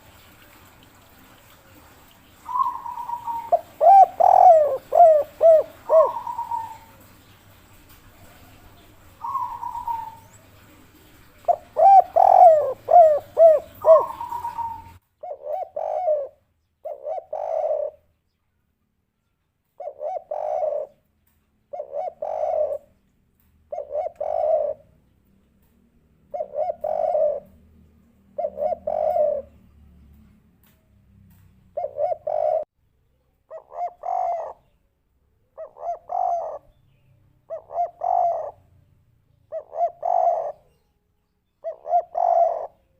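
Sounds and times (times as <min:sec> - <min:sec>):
dove cooing: 0:00.6 - 0:18.1, 0:19.8 - 0:21.0, 0:21.7 - 0:22.9, 0:23.7 - 0:25.0, 0:26.2 - 0:29.6, 0:31.7 - 0:32.7, 0:33.5 - 0:34.8, 0:35.5 - 0:36.8, 0:37.5 - 0:38.6, 0:39.5 - 0:40.8, 0:41.6 - 0:42.9.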